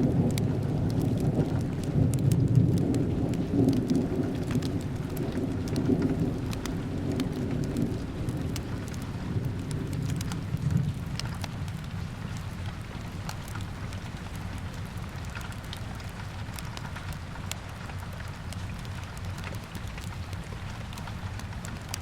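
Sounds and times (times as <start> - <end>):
thunder rumbling: 0.0 - 12.4
steady rain: 0.0 - 22.0
wood fire crackling: 0.0 - 22.0.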